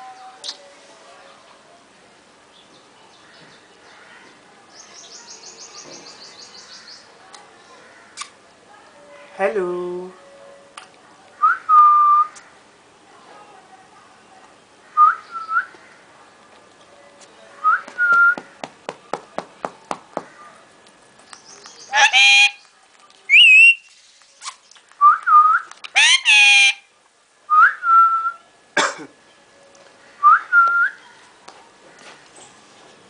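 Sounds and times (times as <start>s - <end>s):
parrot screeching calls: 21.8s - 22.6s, 26.0s - 26.8s
parrot whistling: 23.3s - 23.8s, 25.4s - 26.8s.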